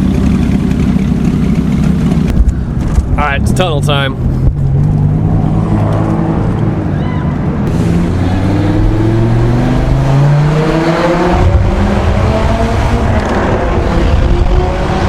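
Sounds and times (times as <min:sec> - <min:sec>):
sports car engine accelerating: 0:03.8 - 0:06.9, 0:07.5 - 0:15.0.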